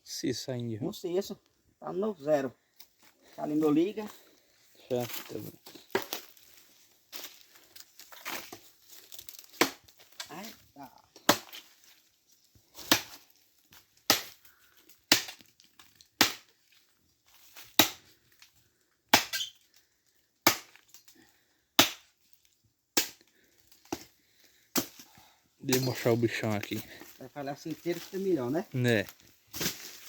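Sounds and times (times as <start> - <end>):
blade chopping wet wood: 9.5 - 9.9, 11.2 - 11.6, 12.8 - 13.2, 14.1 - 14.4, 15.1 - 15.5, 16.2 - 16.5, 17.8 - 18.1, 19.1 - 19.5, 20.4 - 20.8, 21.8 - 22.1, 23.0 - 23.2.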